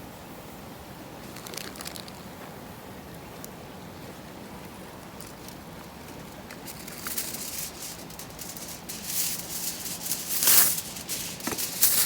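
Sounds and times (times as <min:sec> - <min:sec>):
rustling and crackling: 0:05.0 - 0:12.0.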